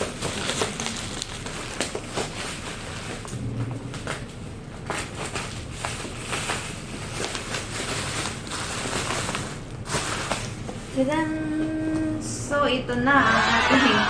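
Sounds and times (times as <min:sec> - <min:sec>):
bubble wrap crinkling and tearing: 0:00.0 - 0:11.0.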